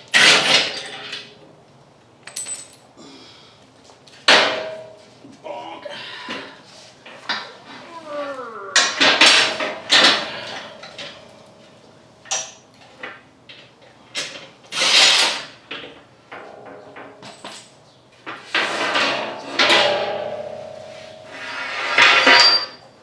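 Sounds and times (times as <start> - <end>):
ringing metallic clang: 4.4 - 5.1, 18.9 - 23.0
metal tools clanking: 8.8 - 11.7, 18.5 - 22.9.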